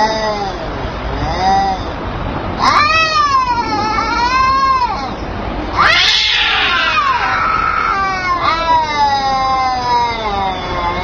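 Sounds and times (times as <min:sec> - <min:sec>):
cats yowling in a fight: 0:02.6 - 0:11.0.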